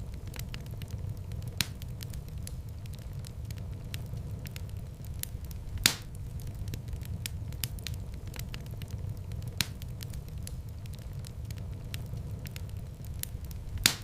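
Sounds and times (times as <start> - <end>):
low rumble of flames: 0.0 - 14.0
sharp fire pops: 0.0 - 14.0
wood fire crackling: 0.0 - 14.0.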